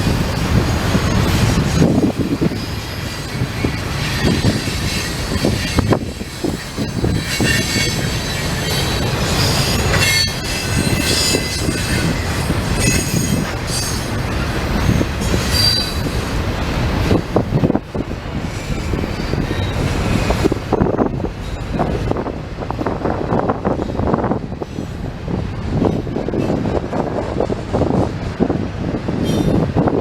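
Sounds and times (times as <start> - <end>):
train wheels rumbling on rail: 0.0 - 30.0
wheel squeal: 2.5 - 16.2, 18.6 - 20.3.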